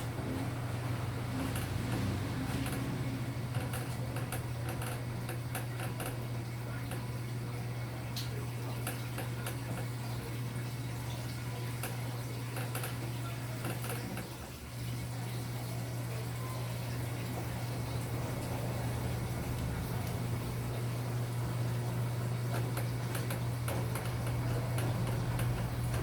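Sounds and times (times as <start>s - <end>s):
washing machine motor hum: 0.0s - 26.0s
water sloshing in tub: 0.0s - 26.0s.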